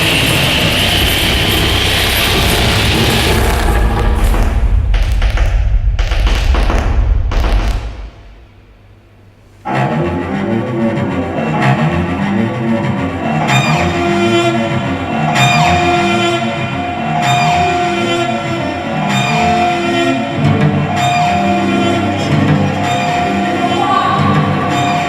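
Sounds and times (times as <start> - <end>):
cello music: 9.6 - 25.0
pulsing accompaniment: 9.6 - 25.0.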